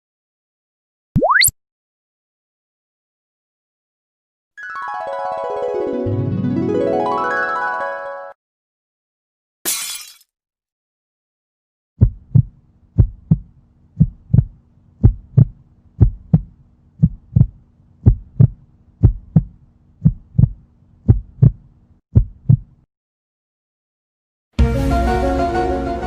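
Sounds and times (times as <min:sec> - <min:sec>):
heartbeat thumps: 0:12.0 - 0:21.6, 0:22.2 - 0:22.8
steady low hum: 0:12.1 - 0:21.7.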